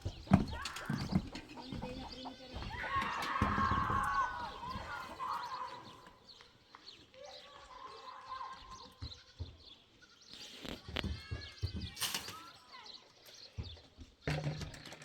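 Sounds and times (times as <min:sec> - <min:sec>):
livestock drawn-out cries: 0:00.3 - 0:06.0.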